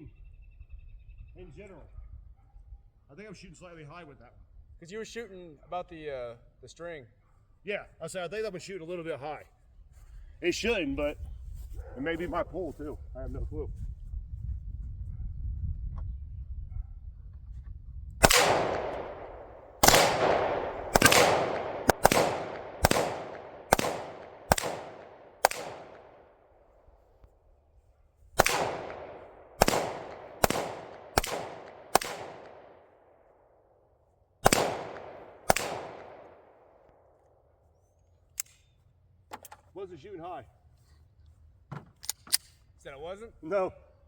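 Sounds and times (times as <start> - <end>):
gunshots echoing: 18.2 - 26.4, 28.4 - 33.0, 34.4 - 36.8.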